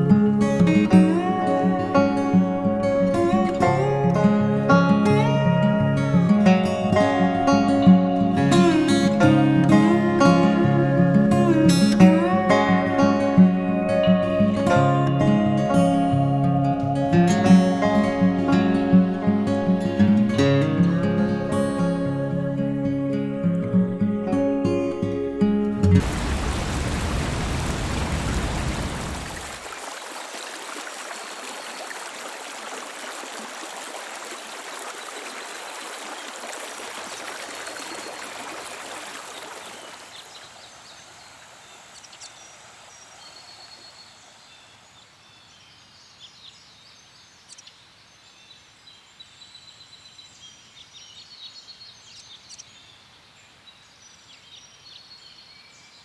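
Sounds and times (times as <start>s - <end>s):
steady rushing outdoor noise: 26.0s - 29.7s.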